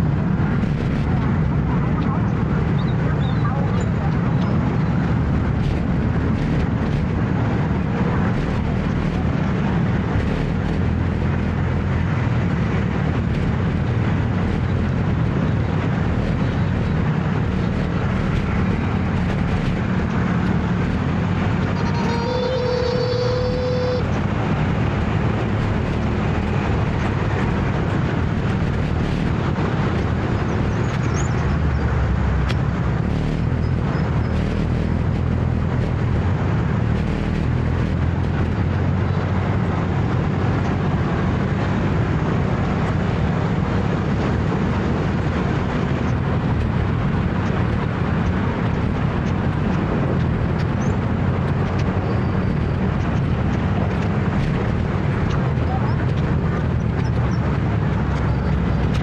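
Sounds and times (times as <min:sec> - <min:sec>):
road and wind noise: 0:00.0 - 0:59.0
motor scooter running: 0:03.9 - 0:31.8, 0:32.4 - 0:39.6.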